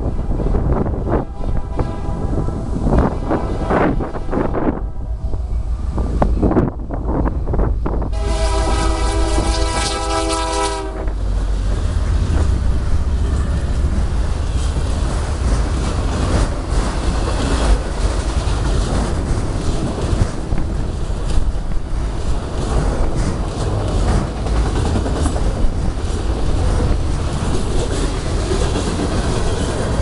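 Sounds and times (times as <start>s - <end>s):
locomotive engine rumble: 0.0s - 30.0s
train wheels on rails: 0.0s - 30.0s
locomotive horn blast: 1.1s - 6.0s, 8.1s - 11.4s
wheels clicking over rail joints: 11.0s - 30.0s.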